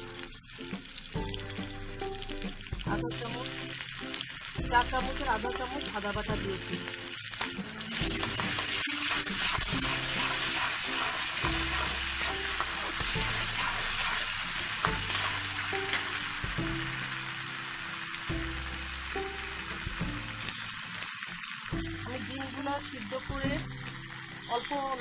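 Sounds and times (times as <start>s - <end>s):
onions sizzling in hot oil: 0.0s - 25.0s
metal spatula scraping a pan: 7.8s - 16.4s.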